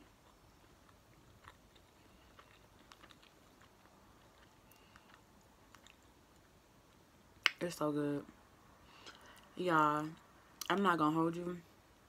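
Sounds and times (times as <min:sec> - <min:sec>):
faint chewing: 0:00.0 - 0:07.6.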